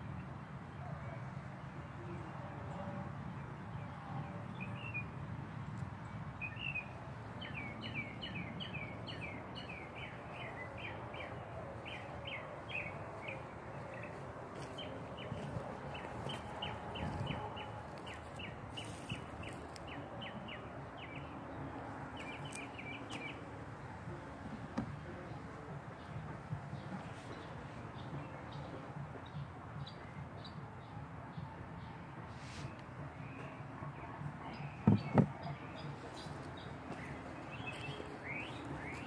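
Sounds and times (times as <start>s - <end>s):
low outdoor rumble: 7.4s - 28.9s.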